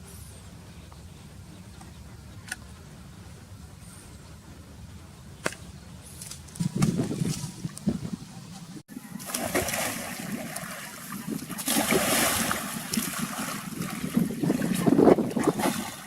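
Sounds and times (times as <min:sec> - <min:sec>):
water splashing and sloshing: 0:06.4 - 0:16.0.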